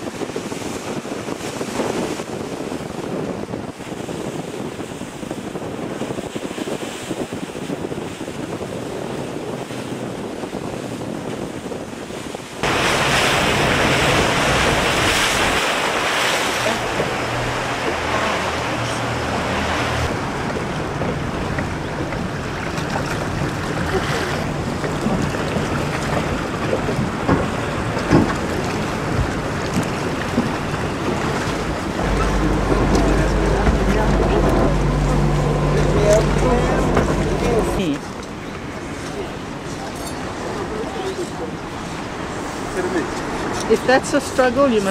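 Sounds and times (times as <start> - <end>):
boat motor hum: 0.0 - 44.9
waves and moving water: 0.0 - 44.9
wind buffeting microphone: 0.0 - 44.9.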